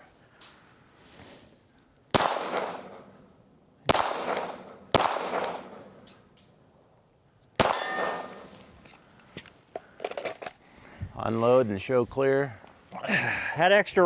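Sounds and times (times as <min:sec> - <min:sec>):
pistol shots: 0:02.1 - 0:03.1, 0:03.9 - 0:06.0, 0:07.6 - 0:08.5
steel plate clanging: 0:07.7 - 0:08.6.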